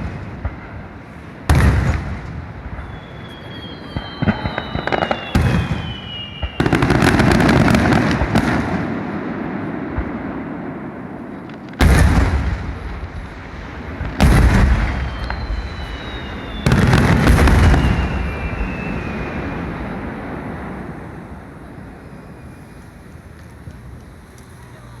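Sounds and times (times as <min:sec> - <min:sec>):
rolling rumble: 0:00.0 - 0:25.0
fireworks shells bursting: 0:02.8 - 0:08.5, 0:11.5 - 0:19.9.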